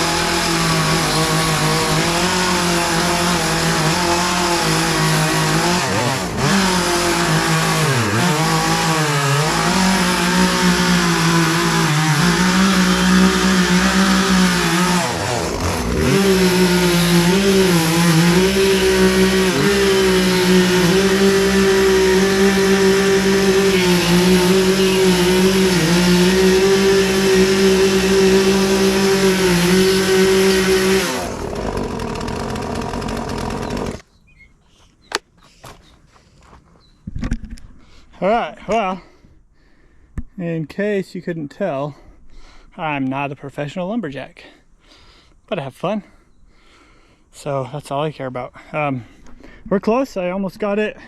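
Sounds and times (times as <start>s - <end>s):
chainsaw cutting wood: 0.0s - 34.1s.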